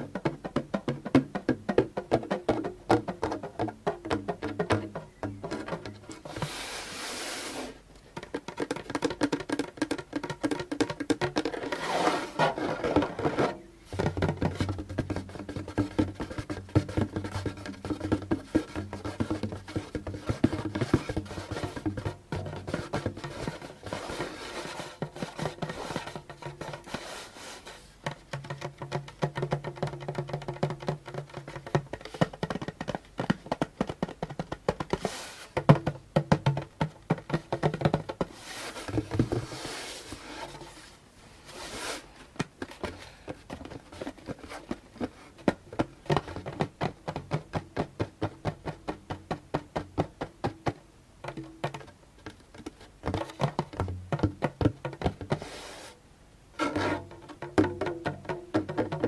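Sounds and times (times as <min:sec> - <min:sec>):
fingers drumming on djembe: 0:00.0 - 0:06.6, 0:08.2 - 0:39.8, 0:42.5 - 0:55.7, 0:56.6 - 0:59.0
rubbing strokes on drum: 0:05.5 - 0:07.8, 0:11.4 - 0:14.7, 0:15.5 - 0:28.0, 0:34.8 - 0:35.6, 0:38.2 - 0:42.2, 0:54.9 - 0:56.0.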